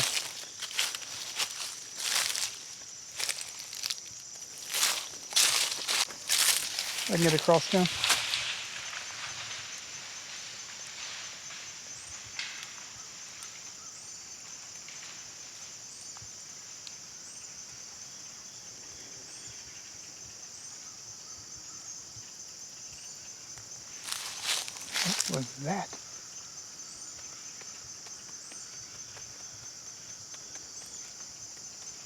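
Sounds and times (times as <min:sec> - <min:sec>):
insect chorus drone: 0:00.0 - 0:32.0.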